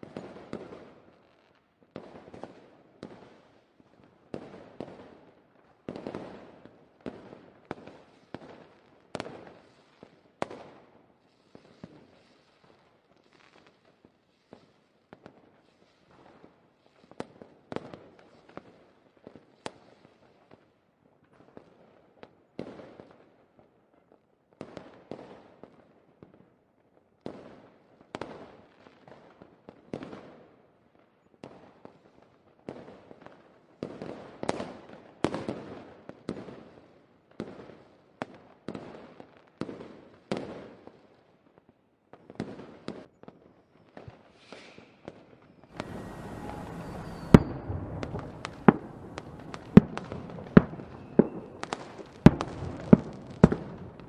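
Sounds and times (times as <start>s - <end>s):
fireworks banging and crackling: 42.2s - 54.0s.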